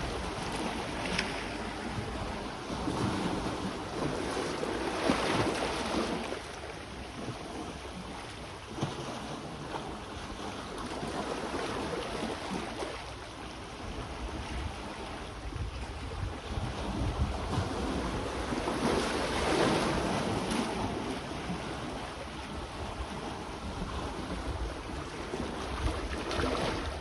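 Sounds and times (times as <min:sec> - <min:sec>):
wind buffeting microphone: 0:00.0 - 0:06.2, 0:13.8 - 0:27.0
sea waves washing ashore: 0:00.0 - 0:27.0.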